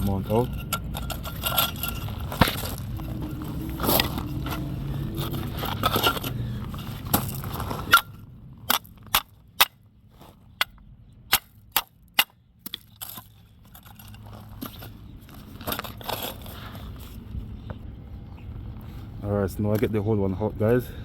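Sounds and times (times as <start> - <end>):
scraping noise: 0.0 - 8.1.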